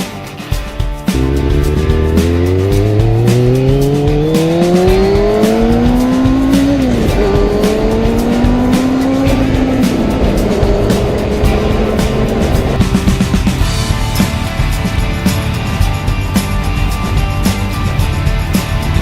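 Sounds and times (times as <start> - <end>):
motorcycle engine accelerating: 1.1 - 19.0.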